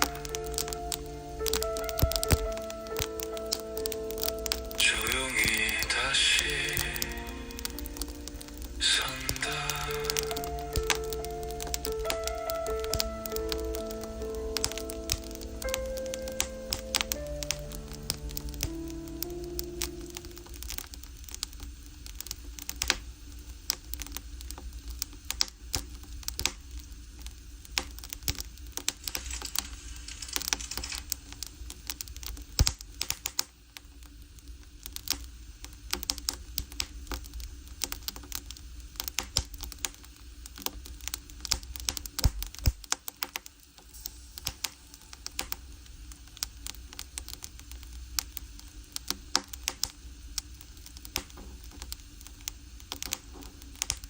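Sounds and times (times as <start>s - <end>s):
firewood crackling and popping: 0.0s - 54.0s
low fire rumble: 0.0s - 54.0s
brief hiss: 43.8s - 47.0s.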